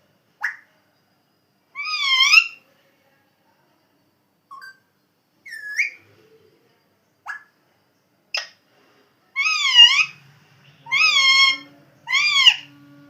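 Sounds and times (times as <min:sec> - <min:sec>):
parrot squeaks and chirps: 0:00.4 - 0:00.6, 0:01.8 - 0:02.6, 0:05.5 - 0:06.0, 0:08.4 - 0:08.6, 0:09.4 - 0:10.2, 0:10.9 - 0:12.7
parrot whistle-like call: 0:09.4 - 0:10.2, 0:10.9 - 0:12.7.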